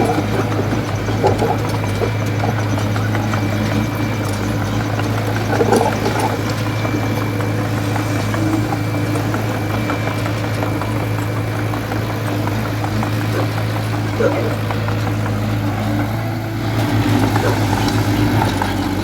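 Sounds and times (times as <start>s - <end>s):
heavy machinery engine running: 0.0s - 19.0s.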